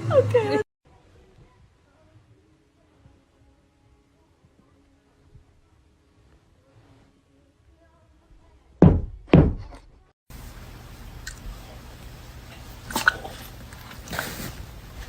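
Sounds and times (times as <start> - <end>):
loud knocks: 8.8 - 9.8
background hiss: 10.3 - 15.0.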